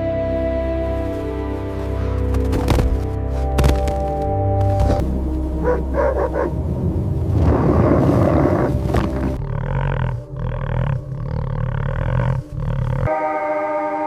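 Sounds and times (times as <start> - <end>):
animal roaring and growling: 5.6 - 13.1.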